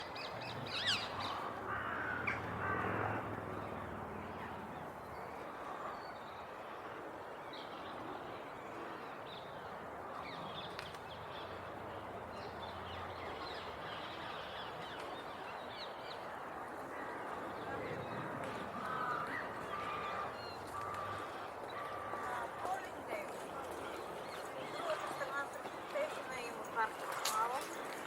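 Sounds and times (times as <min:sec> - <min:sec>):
harsh bird calls: 0:00.0 - 0:03.2.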